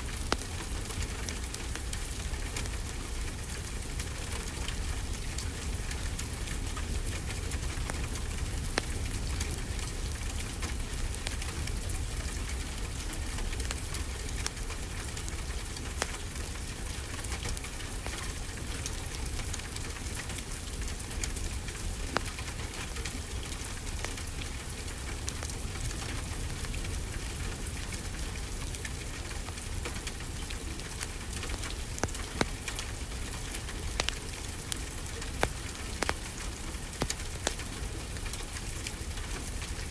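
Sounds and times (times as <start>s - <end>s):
wood fire crackling: 0.0s - 39.9s
rain hissing: 17.5s - 39.9s.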